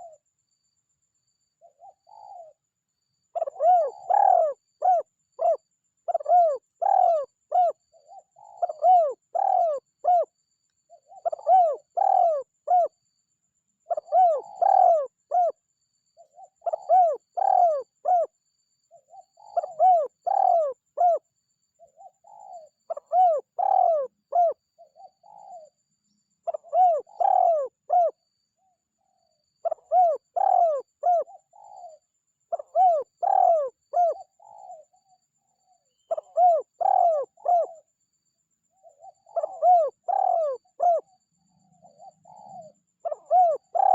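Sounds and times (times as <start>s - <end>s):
dove cooing: 1.6s - 2.6s, 3.4s - 10.3s, 11.0s - 13.0s, 13.9s - 15.6s, 16.2s - 18.3s, 18.9s - 21.2s, 21.9s - 25.7s, 26.4s - 28.2s, 29.6s - 34.9s, 36.0s - 37.8s, 38.8s - 41.2s, 41.8s - 43.9s.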